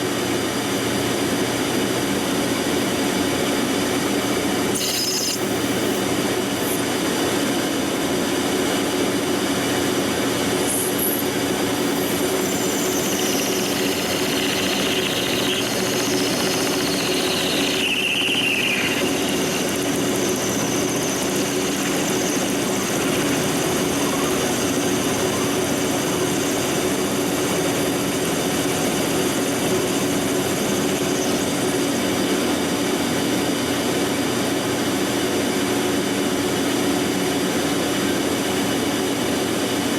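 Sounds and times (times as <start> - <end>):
lathe running: 0.0 - 39.6
cutting insert screeching on metal: 4.7 - 6.8, 10.7 - 25.8.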